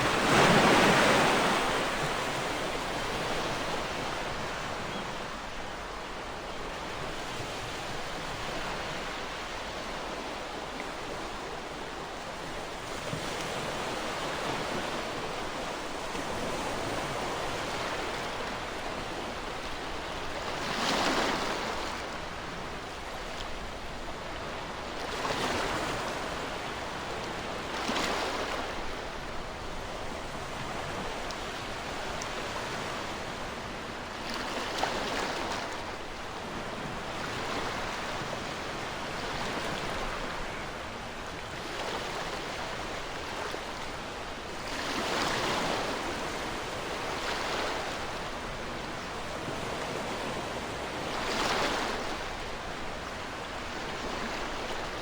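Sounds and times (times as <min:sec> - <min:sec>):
ocean waves washing ashore: 0:00.0 - 0:55.0.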